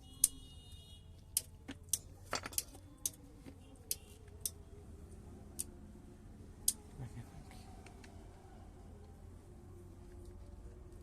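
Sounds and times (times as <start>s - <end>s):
small hard parts clicking: 1.3s - 3.2s.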